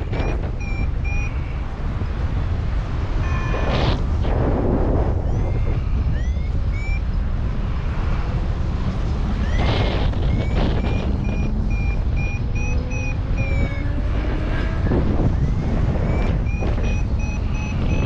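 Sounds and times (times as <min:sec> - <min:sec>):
variometer beeping: 0:00.0 - 0:02.1, 0:03.1 - 0:04.0, 0:05.2 - 0:07.3, 0:09.3 - 0:18.0
strong wind on microphone: 0:00.0 - 0:18.0.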